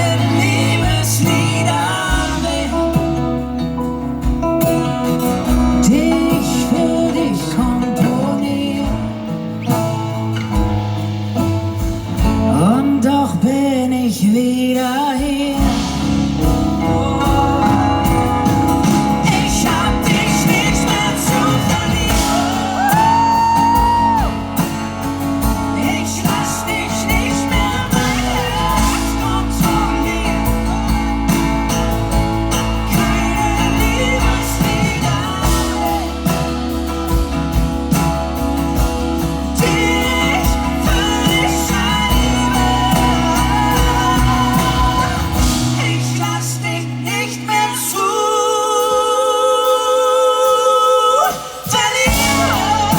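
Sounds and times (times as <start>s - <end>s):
live pop band playing: 0.0s - 52.9s
person singing held line: 15.6s - 24.8s, 32.7s - 36.8s.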